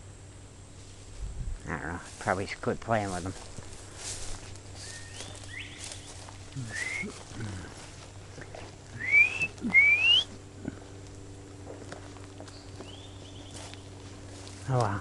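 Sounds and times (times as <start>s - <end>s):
rising whistled notes: 6.6s - 7.1s, 9.0s - 10.3s.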